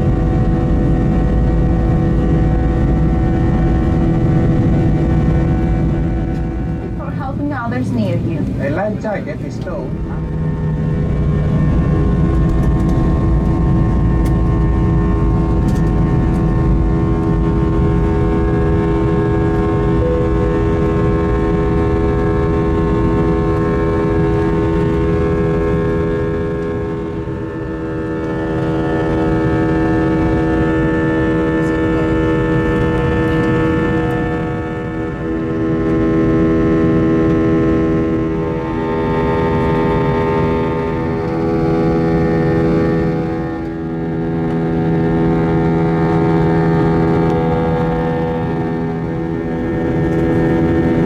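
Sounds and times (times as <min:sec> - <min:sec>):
jet engines droning in cabin: 0:00.0 - 0:51.0.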